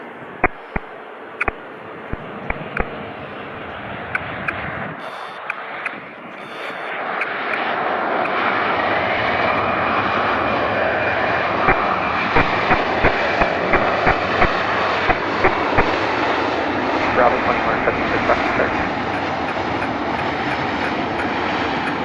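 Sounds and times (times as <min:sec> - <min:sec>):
jet engines roaring: 0:00.0 - 0:22.0
sharp clicks: 0:00.4 - 0:03.0, 0:04.1 - 0:08.4, 0:12.4 - 0:16.0.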